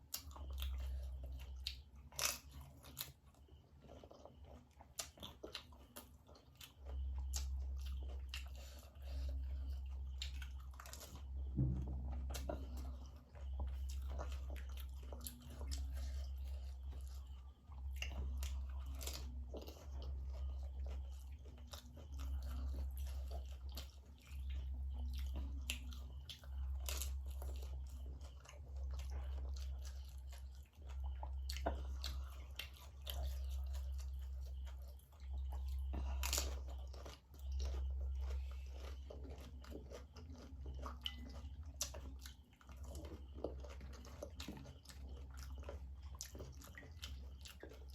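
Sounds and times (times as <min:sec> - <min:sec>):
wet chewing: 0:00.0 - 0:47.9
low hum: 0:07.0 - 0:39.7.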